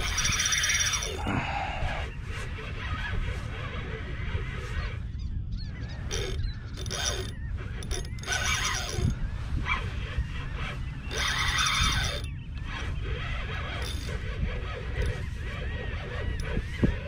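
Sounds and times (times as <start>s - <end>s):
fishing reel ratcheting: 0.0s - 1.3s, 6.1s - 9.2s, 11.1s - 12.8s, 13.7s - 14.2s, 14.9s - 15.2s
low rumble: 0.0s - 8.2s.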